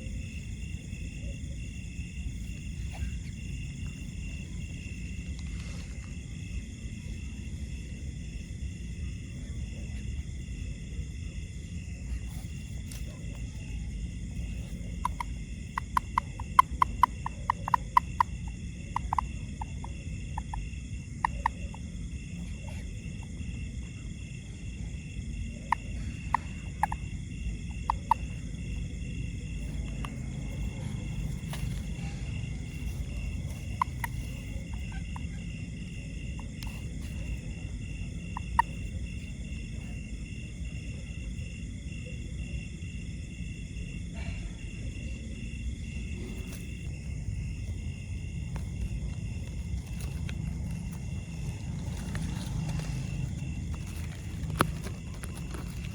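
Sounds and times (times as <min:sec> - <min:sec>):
high-pitched frog and insect ringing: 0:00.0 - 0:55.9
sharp clicking calls: 0:14.8 - 0:20.6, 0:32.7 - 0:35.4.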